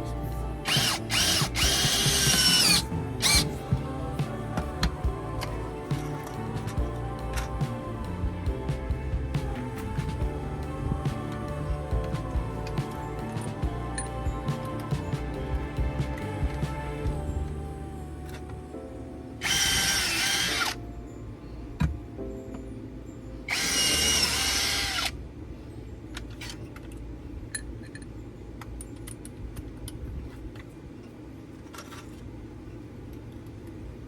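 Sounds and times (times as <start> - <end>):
small electric motor whining: 0.7 - 3.4.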